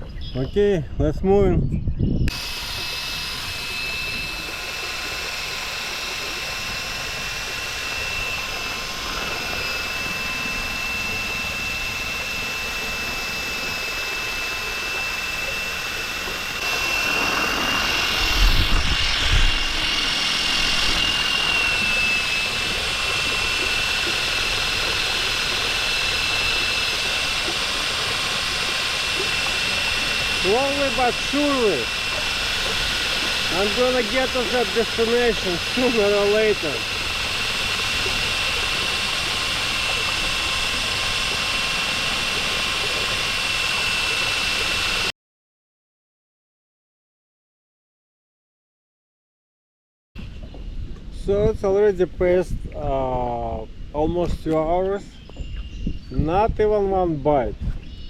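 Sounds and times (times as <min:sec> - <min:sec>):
drill motor whining: 0:02.3 - 0:45.1.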